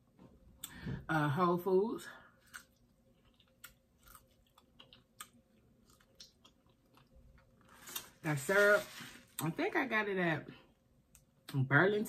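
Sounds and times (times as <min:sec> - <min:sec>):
chewing strawberry: 0:02.4 - 0:08.1.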